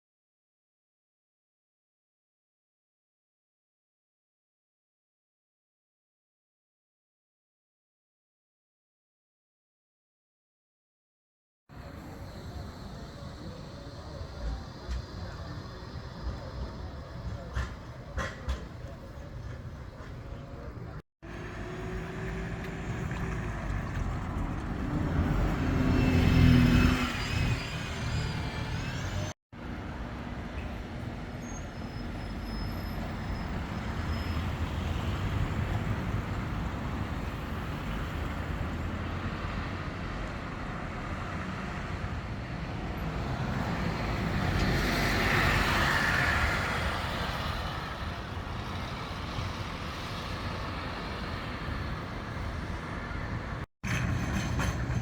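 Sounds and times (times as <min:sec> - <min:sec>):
vehicles passing: 0:11.7 - 0:55.0
whining vehicle pass: 0:21.2 - 0:29.4.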